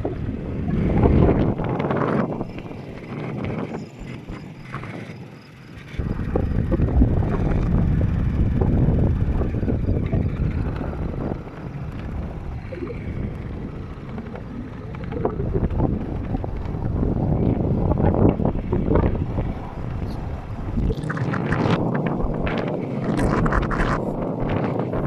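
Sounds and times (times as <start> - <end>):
wind buffeting on microphone: 0.0 - 25.0
scooter engine running: 6.0 - 20.1.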